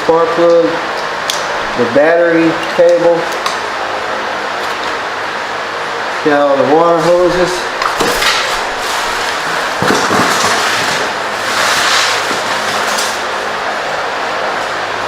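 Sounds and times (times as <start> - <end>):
packing material rustling: 8.1 - 13.3.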